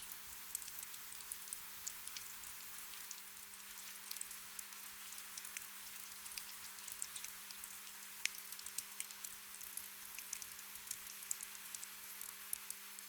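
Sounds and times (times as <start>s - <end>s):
gentle rain: 0.0s - 13.0s.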